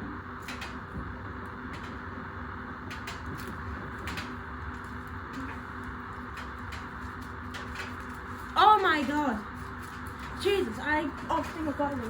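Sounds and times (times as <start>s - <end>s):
washing machine motor humming: 0.0s - 12.0s.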